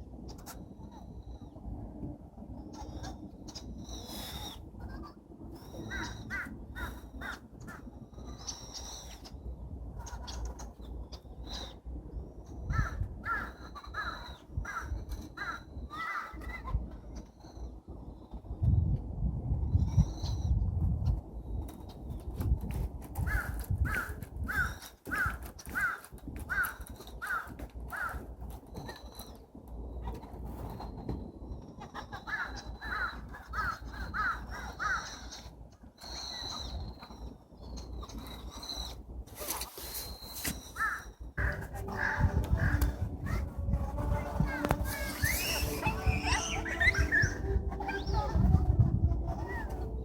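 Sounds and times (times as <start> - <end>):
low background rumble: 0.0 - 39.4, 40.6 - 50.0
bird harsh calls: 2.7 - 9.4, 12.7 - 17.6, 40.0 - 43.6, 44.2 - 48.4
crow cawing: 5.9 - 7.8, 12.7 - 16.4, 23.3 - 28.2, 32.3 - 35.2, 40.8 - 43.4.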